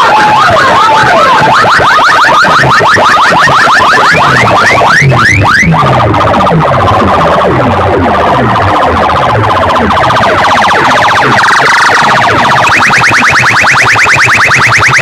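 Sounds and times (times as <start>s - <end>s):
electronic siren effect on loudspeaker: 0.0s - 15.0s.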